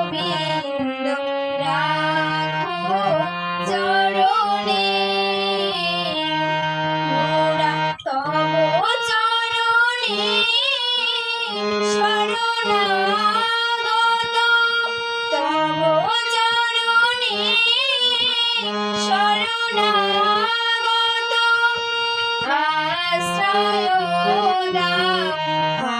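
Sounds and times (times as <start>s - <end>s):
instrumental accompaniment: 0.0s - 25.9s
woman singing devotional song: 0.0s - 25.9s.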